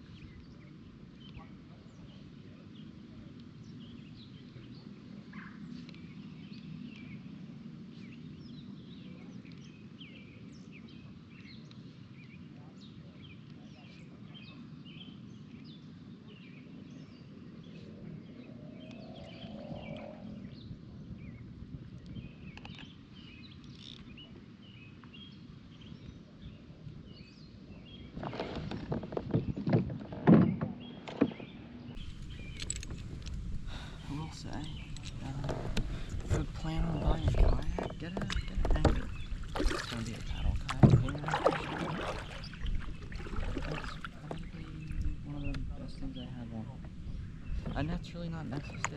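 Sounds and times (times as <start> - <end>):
birds chirping faintly: 0.0 - 29.8, 30.4 - 48.9
birds chirping and calling: 30.5 - 48.9
steady low rumble: 32.0 - 48.9.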